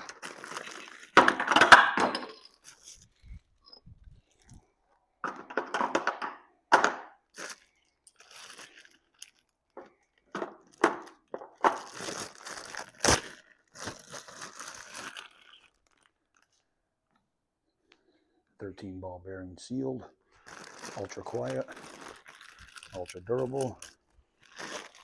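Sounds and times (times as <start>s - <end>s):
packaging crinkling and tearing: 0.0s - 1.6s, 7.3s - 16.6s, 20.4s - 25.0s.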